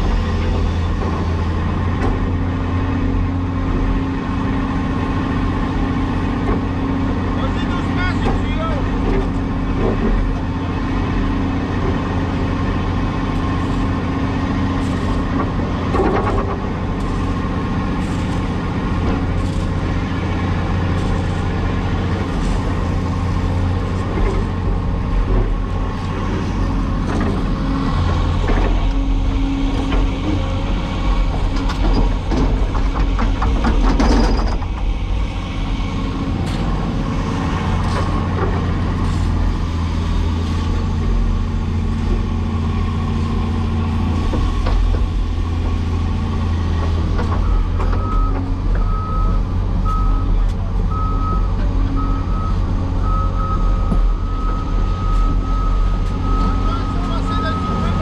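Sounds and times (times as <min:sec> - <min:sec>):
excavator diesel engine running: 0:00.0 - 0:58.0
machine knocks and rattles: 0:27.0 - 0:35.1.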